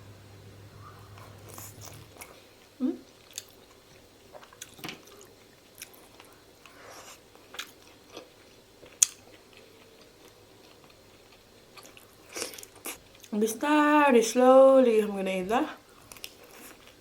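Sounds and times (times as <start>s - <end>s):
person chewing: 1.1s - 2.4s, 3.2s - 13.3s, 16.1s - 17.0s.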